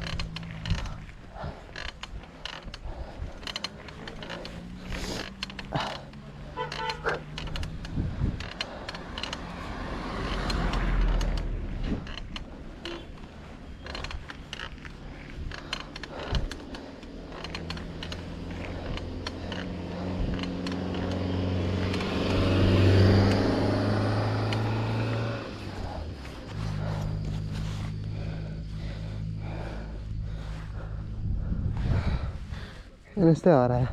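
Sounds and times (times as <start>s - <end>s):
clicks and rattles: 0.0s - 22.6s
vehicle engine passing: 0.0s - 33.4s
low rumble: 0.0s - 33.9s.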